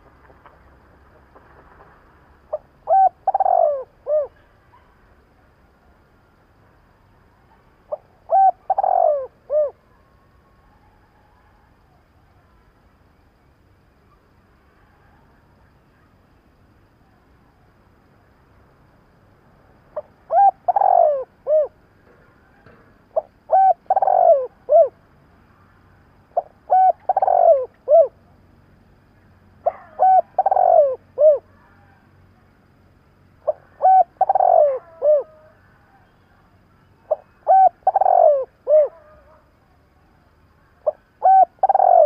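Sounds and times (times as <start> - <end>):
dove cooing: 2.4 - 4.4, 7.9 - 9.9, 20.0 - 21.8, 23.1 - 25.0, 26.4 - 28.2, 29.6 - 32.0, 33.4 - 36.1, 37.0 - 39.5, 40.8 - 42.0.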